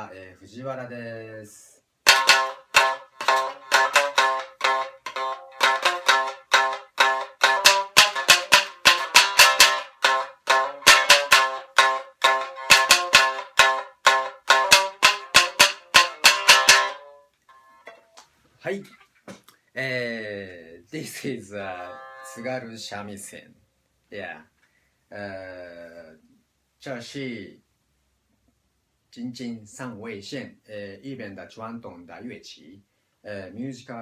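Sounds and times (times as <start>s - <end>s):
shamisen played fast: 2.0s - 18.2s, 21.6s - 22.6s.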